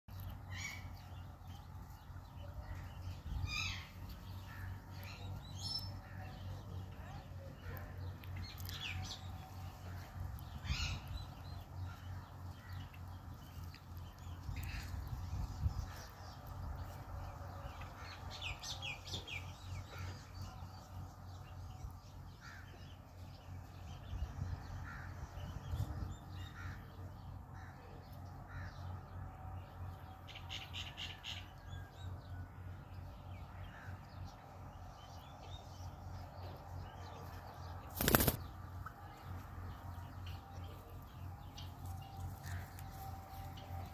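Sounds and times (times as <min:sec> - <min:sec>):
low steady rumble: 0:00.1 - 0:43.9.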